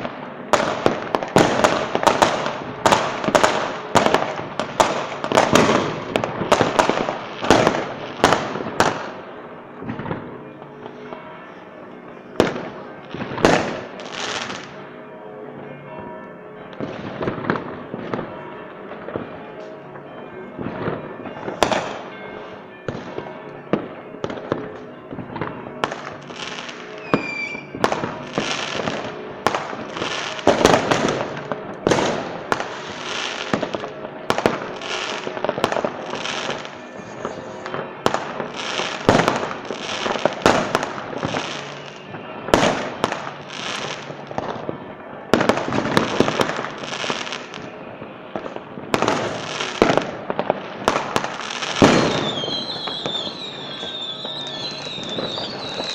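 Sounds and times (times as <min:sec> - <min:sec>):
fireworks bursting with crackle: 0:00.0 - 0:11.2, 0:12.4 - 0:14.8, 0:20.6 - 0:55.9
rising firework whistle: 0:27.0 - 0:27.8, 0:51.4 - 0:55.9.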